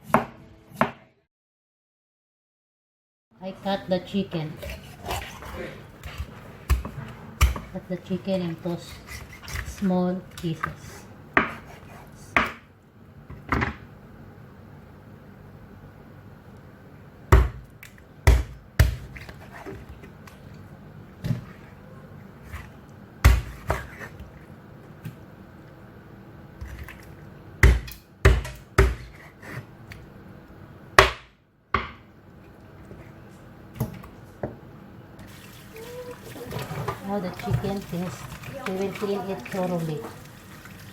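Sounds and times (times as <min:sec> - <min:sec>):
knife chopping on cutting board: 0:11.4 - 0:12.6, 0:27.6 - 0:29.6.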